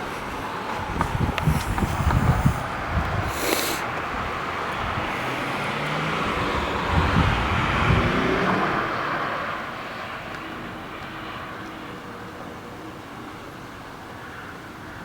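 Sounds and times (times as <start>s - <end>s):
low rumbles: 0.0s - 8.8s
car passing by: 0.0s - 12.1s.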